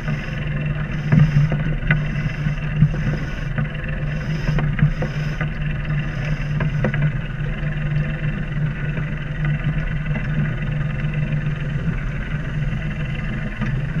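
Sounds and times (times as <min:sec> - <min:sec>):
faint ticks: 0:00.0 - 0:07.2
boat engine humming: 0:00.0 - 0:14.0.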